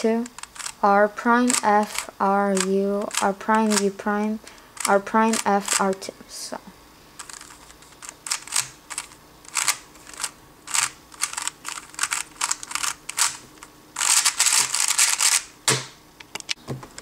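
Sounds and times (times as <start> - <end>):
puzzle cube layer turns clicking: 0.2 - 0.8, 1.4 - 5.9, 7.2 - 15.5.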